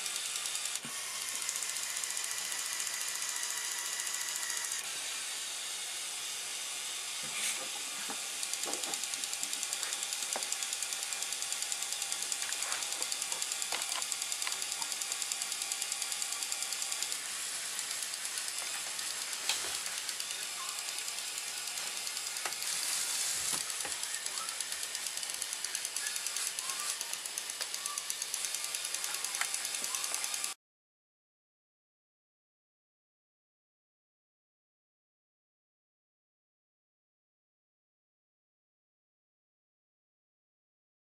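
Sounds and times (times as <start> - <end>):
toy truck motors whirring: 0.0 - 30.6
sharp clicks: 23.5 - 30.6.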